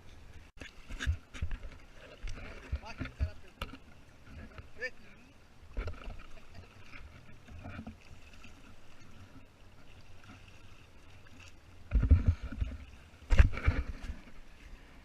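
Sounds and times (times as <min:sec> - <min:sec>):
water sloshing against kayak hull: 0:00.0 - 0:15.0.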